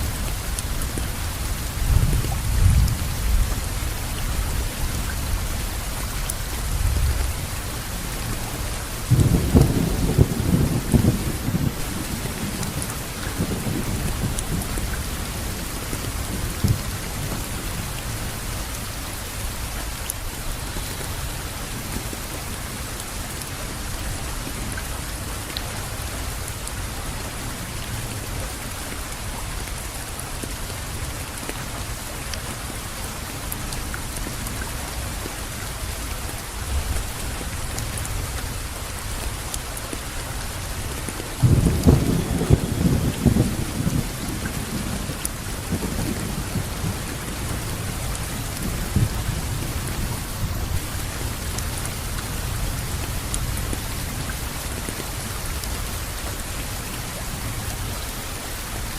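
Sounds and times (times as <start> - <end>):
rain pattering: 0.0 - 58.9
low rumble of thunder: 1.2 - 5.8, 6.4 - 18.3, 41.4 - 55.0.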